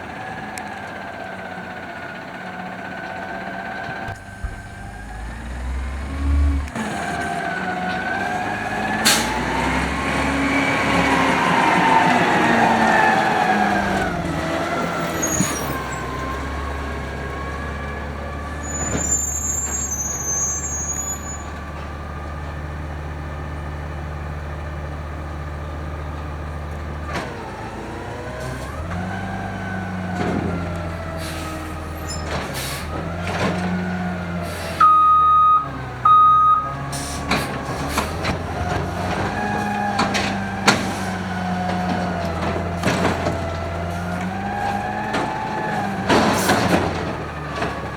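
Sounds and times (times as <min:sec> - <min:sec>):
garbage truck engine running: 0:00.0 - 0:47.9
short loud beeps: 0:34.8 - 0:36.8.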